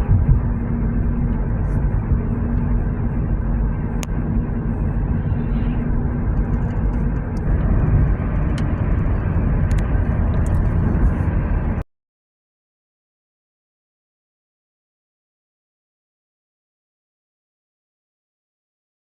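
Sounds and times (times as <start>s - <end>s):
car road and engine rumble: 0.0s - 11.8s.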